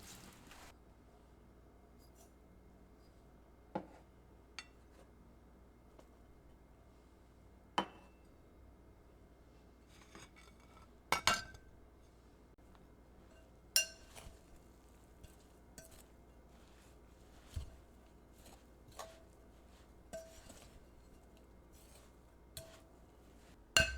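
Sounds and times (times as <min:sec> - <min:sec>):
dishes and utensils clinking: 0:10.0 - 0:11.7, 0:13.2 - 0:14.6, 0:18.4 - 0:22.9.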